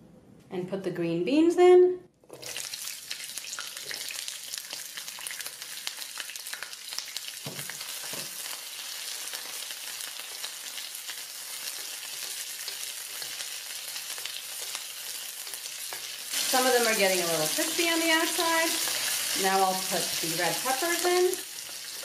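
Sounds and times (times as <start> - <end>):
beans sizzling in hot oil: 2.3 - 22.0.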